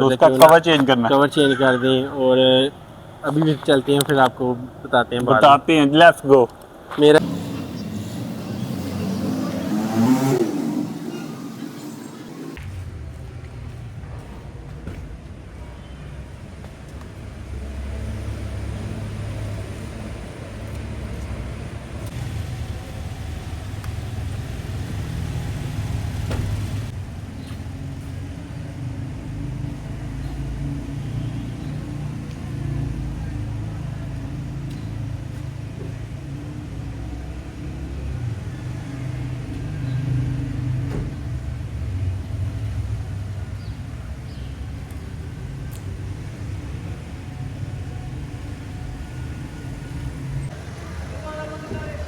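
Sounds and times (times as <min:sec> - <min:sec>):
car engine and road rumble: 0:06.4 - 0:13.6, 0:17.3 - 0:51.2.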